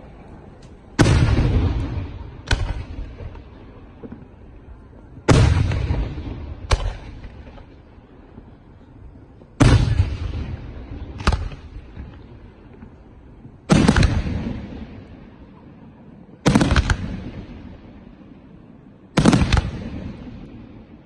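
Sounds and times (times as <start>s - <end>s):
firework shells booming: 1.0s - 4.3s, 5.2s - 7.7s, 9.6s - 13.0s, 13.7s - 15.1s, 16.4s - 17.7s, 19.2s - 20.9s.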